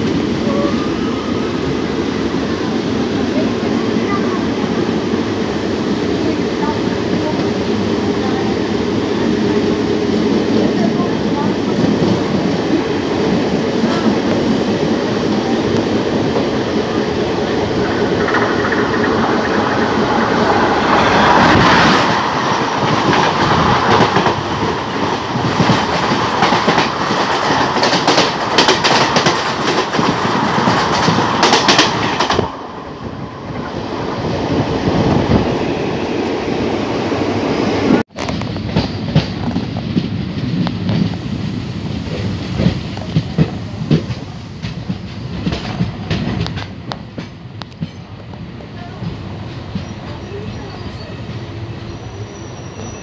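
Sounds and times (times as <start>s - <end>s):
passing train rushing and rattling: 0.0s - 53.0s
wheels clacking over rail joints: 15.2s - 32.6s.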